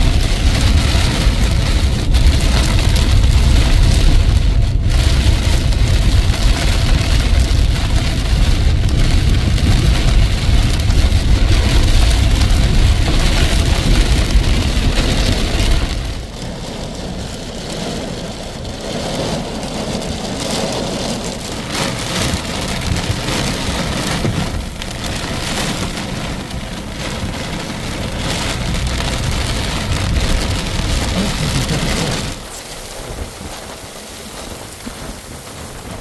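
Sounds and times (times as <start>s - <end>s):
heavy rain pouring: 0.0s - 36.0s
loud low rumble: 21.6s - 33.2s.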